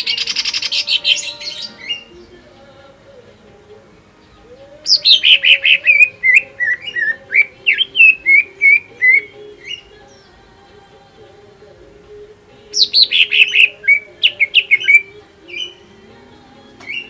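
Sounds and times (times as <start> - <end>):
bird singing whistled notes: 0.0 - 2.5, 4.2 - 10.4, 12.7 - 16.0.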